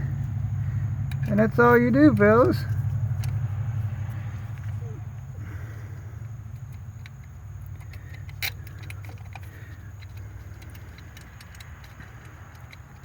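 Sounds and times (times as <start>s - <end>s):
steady low hum: 0.0s - 13.0s
metallic clicks of small parts: 6.5s - 13.0s.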